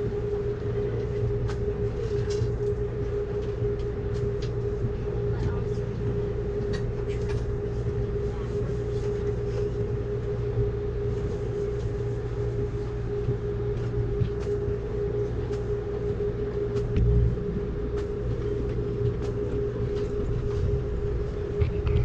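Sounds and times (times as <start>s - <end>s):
train rumble from on board: 0.0s - 22.0s
heavy low thump: 16.8s - 22.0s.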